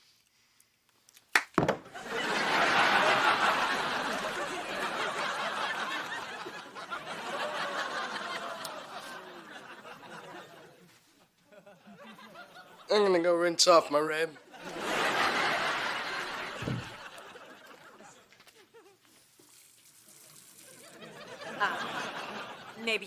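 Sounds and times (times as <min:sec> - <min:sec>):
sharp knocks: 0:01.4 - 0:01.9, 0:16.6 - 0:17.0
studio audience laughing: 0:01.9 - 0:13.1, 0:14.4 - 0:19.2, 0:20.6 - 0:23.0.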